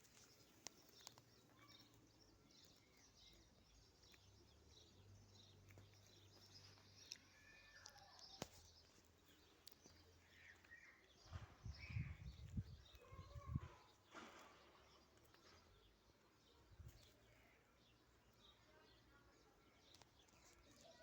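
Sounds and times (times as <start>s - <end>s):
faint birds chirping: 0.0s - 21.0s.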